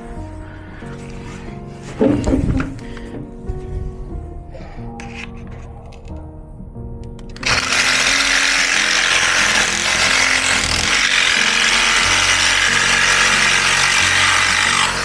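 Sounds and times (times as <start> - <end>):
power tool whining: 7.3 - 15.0.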